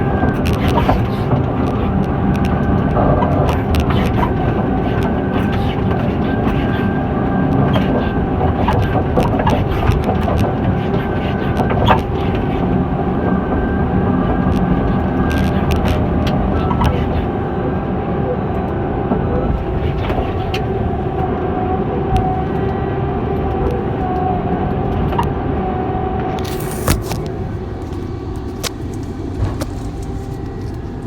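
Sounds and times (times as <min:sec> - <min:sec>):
faint steady whine: 0:26.4 - 0:31.0
diesel engine running: 0:26.5 - 0:31.0.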